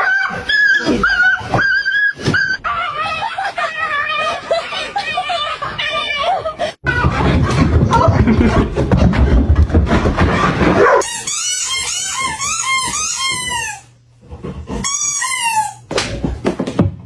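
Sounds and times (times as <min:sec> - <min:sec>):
dog whining and whimpering: 0:00.0 - 0:04.4.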